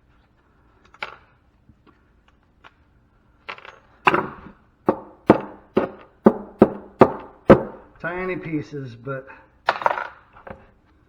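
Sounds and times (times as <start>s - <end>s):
hand tool striking metal: 4.1s - 7.9s.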